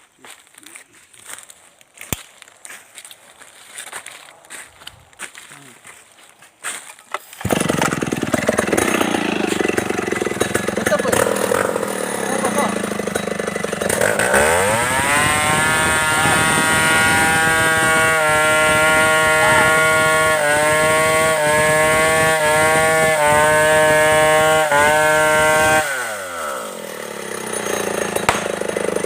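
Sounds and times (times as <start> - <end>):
chainsaw revving: 7.1 - 29.0.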